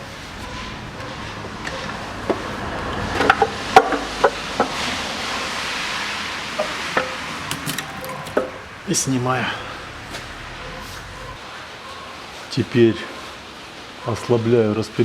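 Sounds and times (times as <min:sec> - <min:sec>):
bolts and tools clinking on metal: 0:06.6 - 0:08.6.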